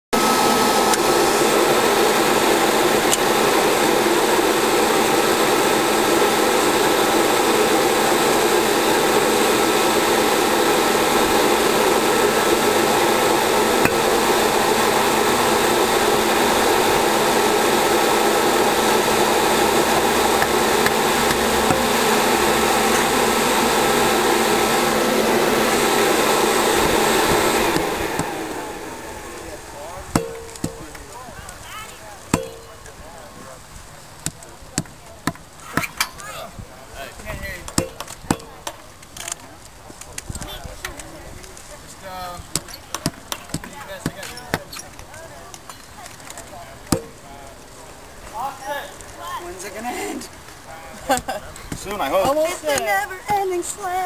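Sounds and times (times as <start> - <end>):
furnace rushing blast: 0.1 - 31.2
thin steady whine: 0.1 - 54.0.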